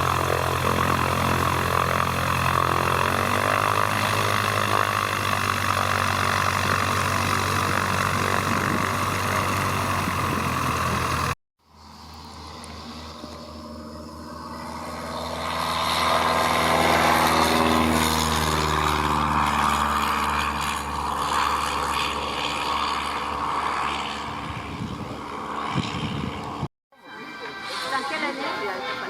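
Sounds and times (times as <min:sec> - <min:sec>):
propeller aircraft passing by: 0:00.0 - 0:29.0.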